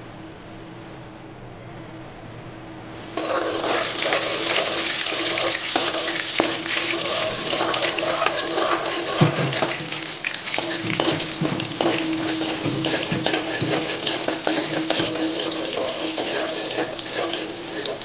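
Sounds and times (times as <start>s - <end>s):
hot oil sizzling: 3.2s - 18.0s
metal spoon scraping wok: 3.2s - 18.0s.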